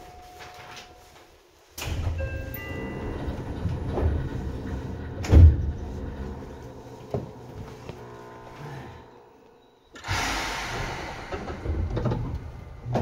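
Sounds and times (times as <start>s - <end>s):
train running gear rumble: 2.0s - 8.5s, 10.0s - 13.0s.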